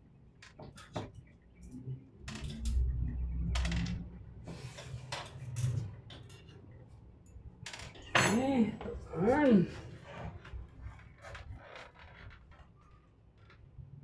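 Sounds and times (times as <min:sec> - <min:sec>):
tools clattering on workbench: 0:08.0 - 0:08.6.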